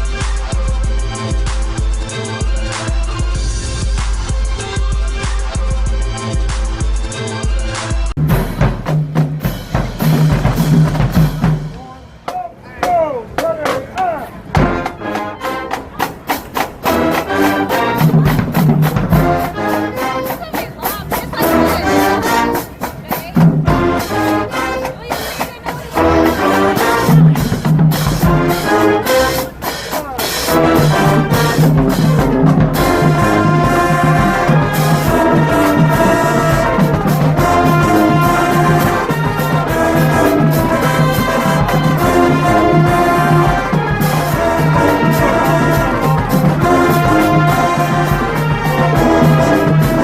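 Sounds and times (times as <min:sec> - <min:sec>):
marching band playing: 0:00.0 - 0:50.0
marching drums: 0:00.0 - 0:50.0.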